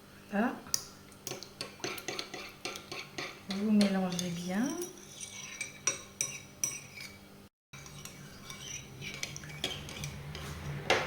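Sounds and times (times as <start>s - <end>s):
spoon clinking in a bowl: 1.3s - 7.2s, 7.8s - 10.5s.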